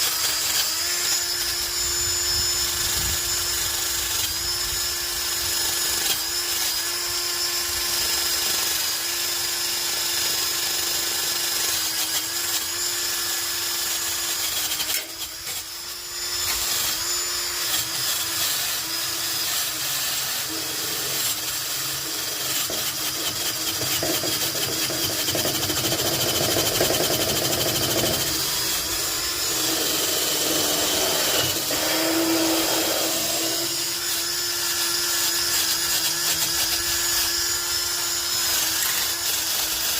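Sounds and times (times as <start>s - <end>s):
electric power tool running: 0.0s - 39.9s
tool scraping on metal: 14.1s - 39.9s.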